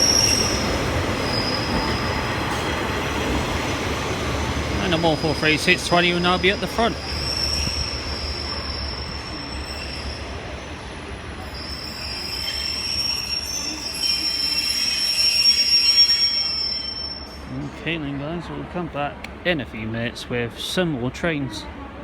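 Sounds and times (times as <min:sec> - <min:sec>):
train wheel squeal: 0:00.0 - 0:02.8, 0:04.8 - 0:17.5
low train rumble: 0:00.0 - 0:22.0.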